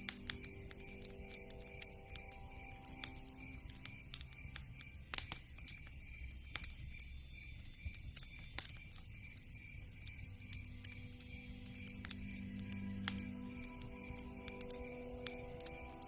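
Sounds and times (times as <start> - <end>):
campfire crackling and popping: 0.0 - 16.0
faint high insect chirp: 0.0 - 16.0.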